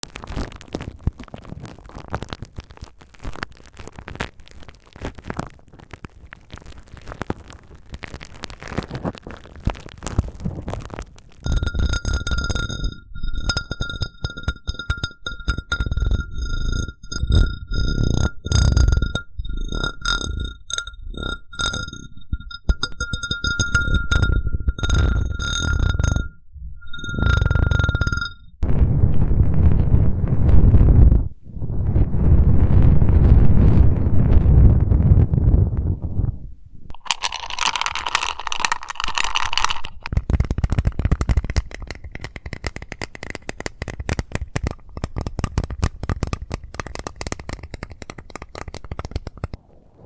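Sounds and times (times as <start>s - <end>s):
close-miked crackles and taps: 0.0s - 26.3s, 36.9s - 49.6s
glass cup squeaking and ringing: 11.4s - 28.5s, 36.9s - 40.1s.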